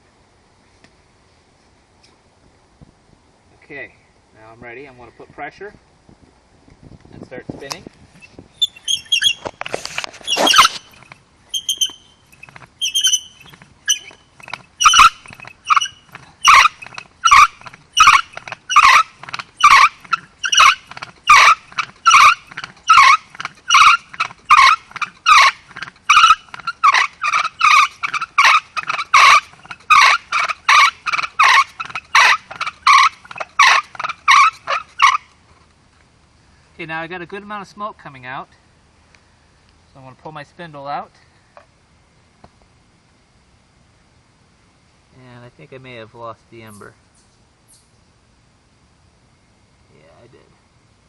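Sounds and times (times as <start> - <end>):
bow drill spindle squeaking: 8.2 - 35.2.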